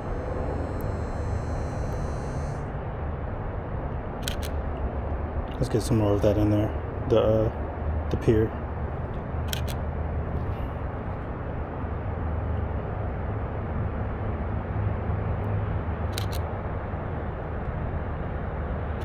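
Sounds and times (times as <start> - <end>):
steady low rumble: 0.0 - 19.0
camera shutter double click: 4.2 - 4.6, 9.5 - 9.8, 16.1 - 16.5.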